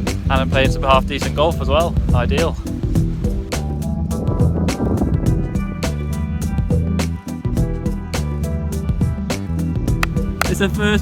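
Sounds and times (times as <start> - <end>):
background music with drum beat: 0.0 - 10.8.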